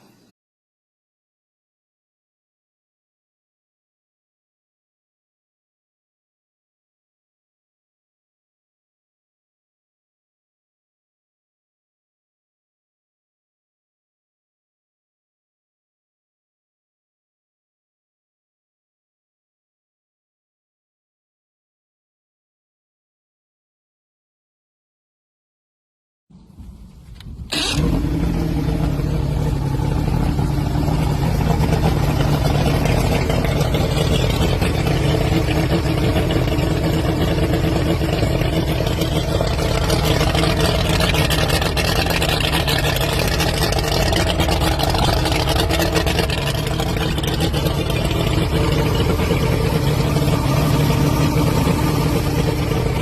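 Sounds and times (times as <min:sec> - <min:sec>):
outboard motor starting and running: 0:26.4 - 0:53.0.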